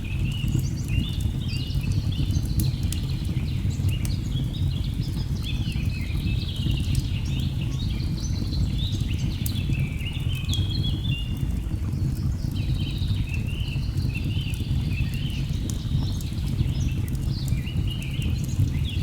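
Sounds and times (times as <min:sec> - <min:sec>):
wood fire crackling: 0:14.6 - 0:19.0.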